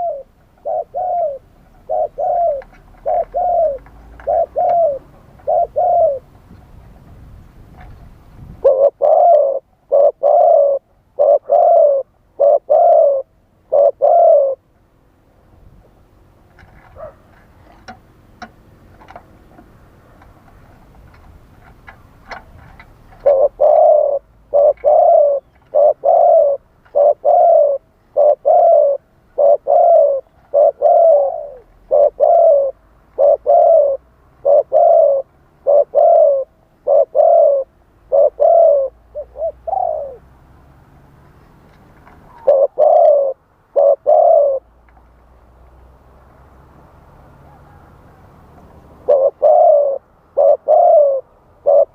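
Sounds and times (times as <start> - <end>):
dove cooing: 0.0 - 6.3, 8.6 - 14.6, 22.3 - 40.3, 42.2 - 44.7, 49.0 - 51.9.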